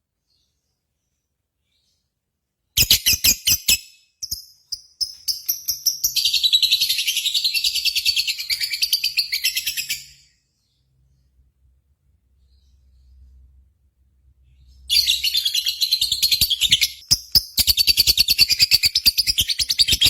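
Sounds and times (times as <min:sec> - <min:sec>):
lovebird chirping and trilling: 0:02.8 - 0:10.4, 0:14.6 - 0:20.0.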